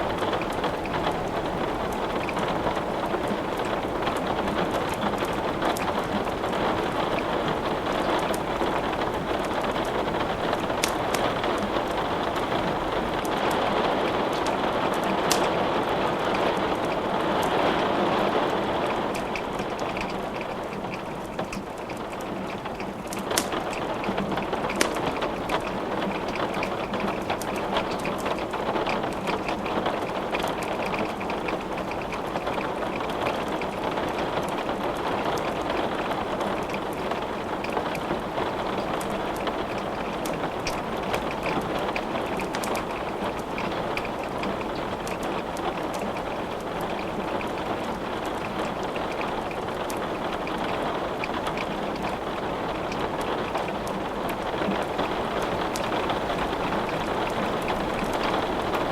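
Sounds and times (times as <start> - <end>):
steady rain: 0.0 - 58.9
wood fire crackling: 0.0 - 58.9.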